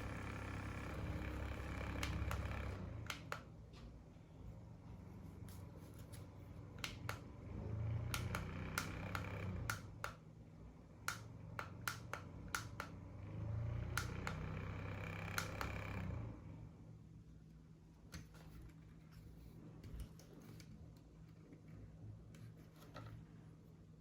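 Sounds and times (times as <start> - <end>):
fan motor hum: 0.0 - 23.8
plastic clicks and taps: 6.7 - 7.3, 11.1 - 13.0.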